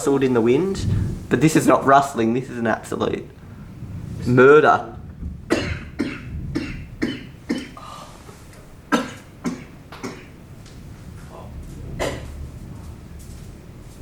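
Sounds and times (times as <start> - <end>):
person coughing: 5.5 - 8.0, 8.9 - 10.4, 12.0 - 12.3.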